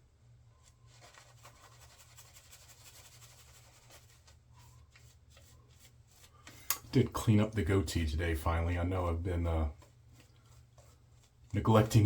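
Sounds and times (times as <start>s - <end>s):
shaving brush scratching lather: 0.6s - 6.5s.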